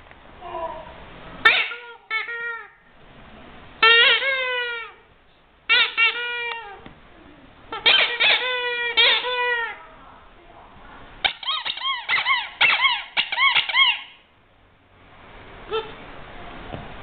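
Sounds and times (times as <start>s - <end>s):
rubber squeaky toy squeaking: 1.4s - 2.7s, 3.8s - 5.0s, 5.7s - 6.8s, 7.7s - 9.8s, 11.2s - 14.2s.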